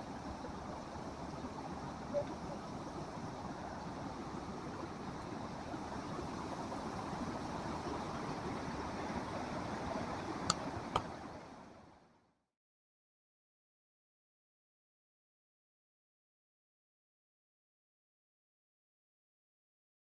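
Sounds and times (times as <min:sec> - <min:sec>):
floodwater rushing: 0:00.0 - 0:11.8.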